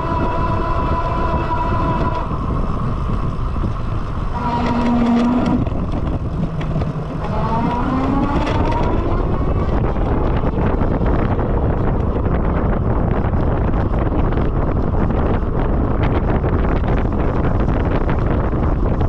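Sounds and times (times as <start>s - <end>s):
electric bike motor whining: 0.0s - 12.1s
wind and road noise: 0.0s - 19.0s.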